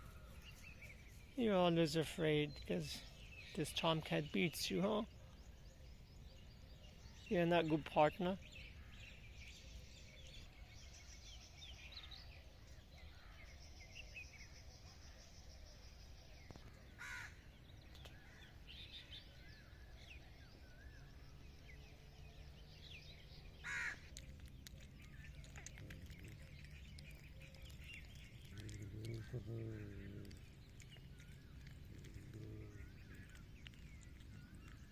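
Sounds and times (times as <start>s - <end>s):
distant birds chirping: 0.0s - 34.9s
low steady background hum: 0.0s - 34.9s
short loud bird calls: 23.6s - 24.1s.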